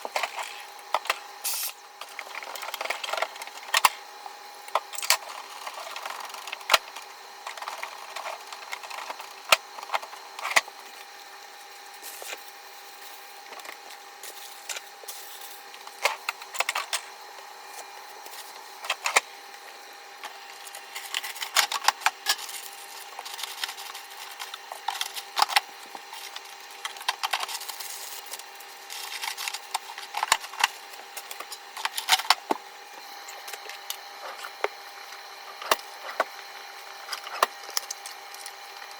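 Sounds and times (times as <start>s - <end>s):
refrigerator hum: 0.0s - 38.9s
food packs clicking and knocking: 4.7s - 10.7s.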